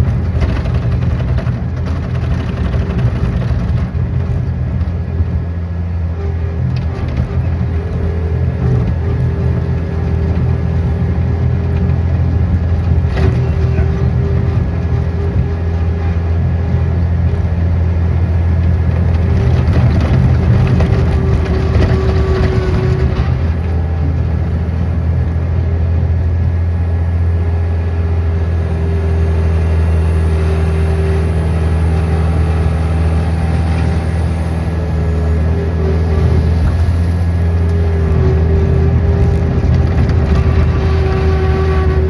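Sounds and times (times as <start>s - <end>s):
engine running: 0.0s - 42.0s.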